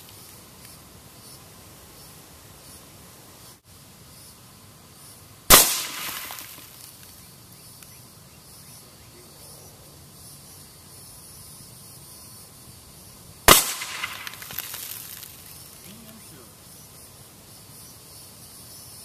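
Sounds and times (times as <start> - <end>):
suppressed gunshot echoing: 5.5 - 6.4, 13.5 - 14.7.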